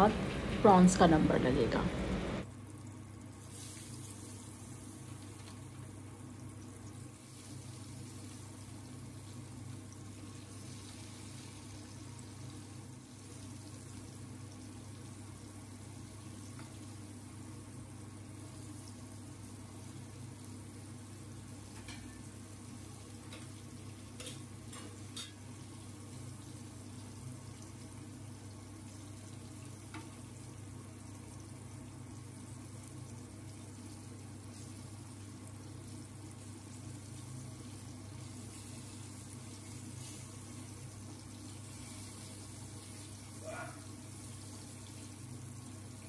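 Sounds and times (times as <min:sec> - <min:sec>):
low steady hum: 0:00.0 - 0:46.0
food sizzling in hot oil: 0:02.0 - 0:46.0.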